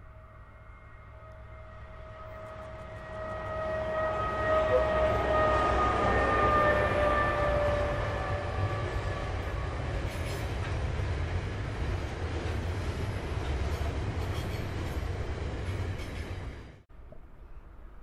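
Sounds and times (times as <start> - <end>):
freight train wheels clattering on rails: 8.9 - 16.7.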